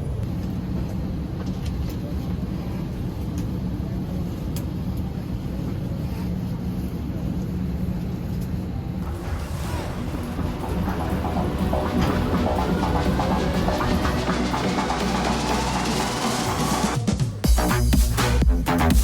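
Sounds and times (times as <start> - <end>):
airliner cabin rumble: 0.0 - 17.4.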